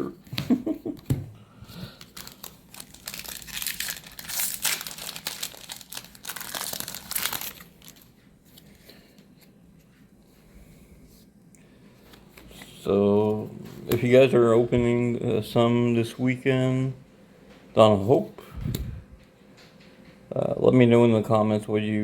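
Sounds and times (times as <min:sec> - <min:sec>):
foil wrapper crinkling and tearing: 0:02.0 - 0:08.1.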